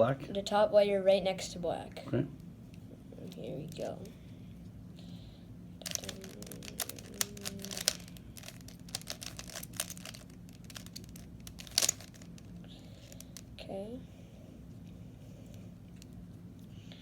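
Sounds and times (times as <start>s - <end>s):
puzzle cube clicking: 5.8s - 12.4s.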